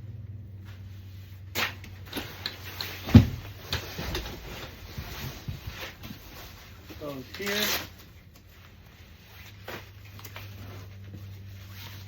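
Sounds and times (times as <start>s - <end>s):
loud knock: 3.1s - 3.4s.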